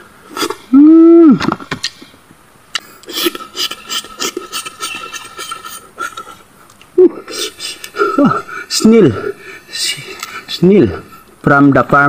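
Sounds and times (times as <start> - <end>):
man humming: 0.4 - 1.5, 7.0 - 11.2.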